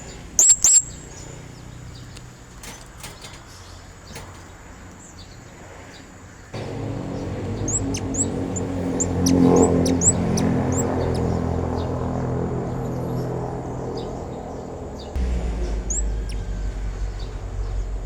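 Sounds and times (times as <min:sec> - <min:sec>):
parrot chirping: 0:06.6 - 0:11.6
steady low hum: 0:06.6 - 0:18.0.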